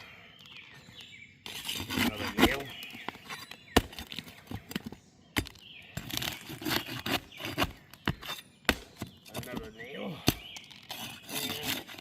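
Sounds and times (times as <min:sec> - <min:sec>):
scraping and tearing: 0:01.4 - 0:08.5, 0:10.5 - 0:12.0.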